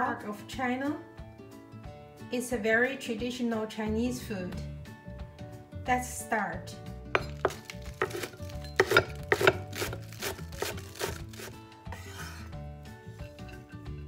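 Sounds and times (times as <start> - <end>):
background music: 0.0 - 14.0
knife chopping on wooden board: 7.2 - 12.2
knife scraping board: 7.2 - 12.6.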